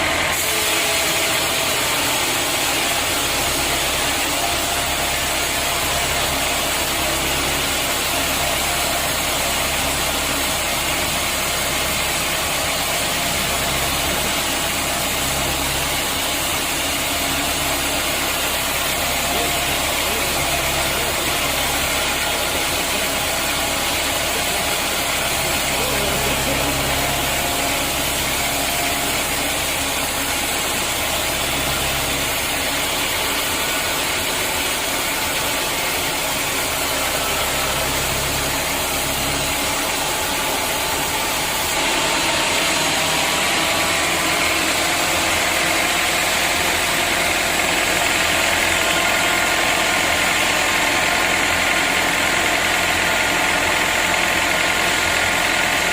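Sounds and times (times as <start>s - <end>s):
saw hissing: 0.2s - 48.6s.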